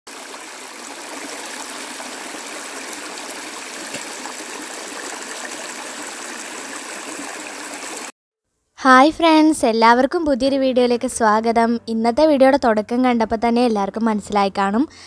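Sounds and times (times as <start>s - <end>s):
small stream flowing: 0.1s - 8.2s.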